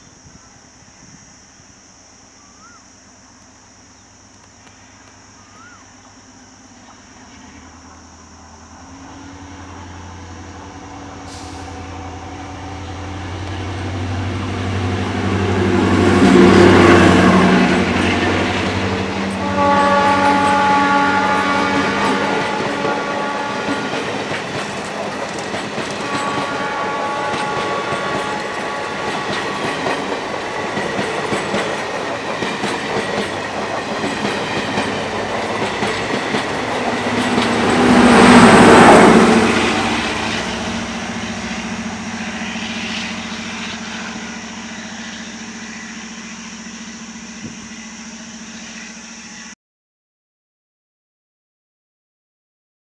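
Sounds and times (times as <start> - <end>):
train wheels clattering over rail joints: 20.3 - 38.8.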